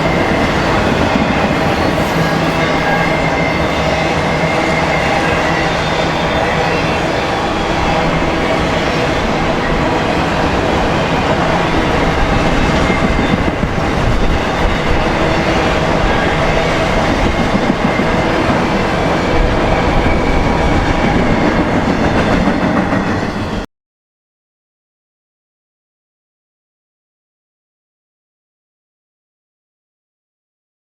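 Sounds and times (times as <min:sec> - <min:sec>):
clickety-clack over rail joints: 0:00.0 - 0:03.8, 0:08.0 - 0:23.3.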